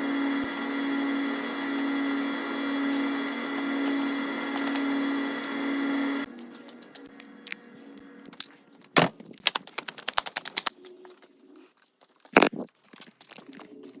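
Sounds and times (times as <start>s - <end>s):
fast sharp clicks: 9.4s - 10.9s.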